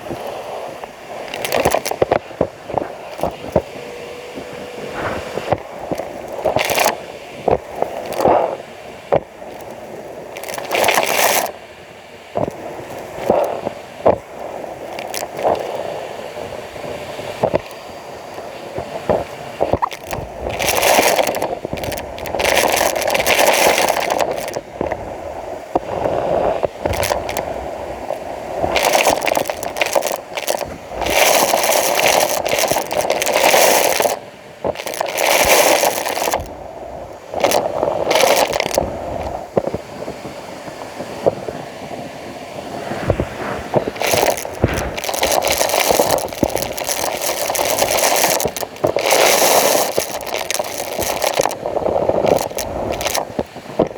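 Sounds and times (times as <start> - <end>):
vacuum cleaner scraping strokes: 2.7 - 6.8.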